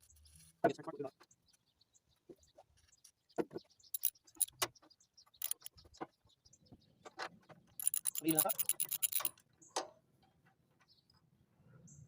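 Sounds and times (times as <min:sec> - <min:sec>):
metallic clicks of hand tools: 0:04.0 - 0:04.7, 0:05.4 - 0:05.7, 0:07.8 - 0:09.4.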